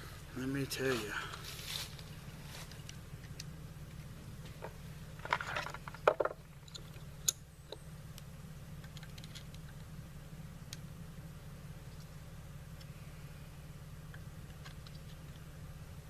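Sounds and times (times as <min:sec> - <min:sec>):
low steady hum: 0:00.0 - 0:16.0
metal parts clicking and rattling: 0:05.2 - 0:07.4.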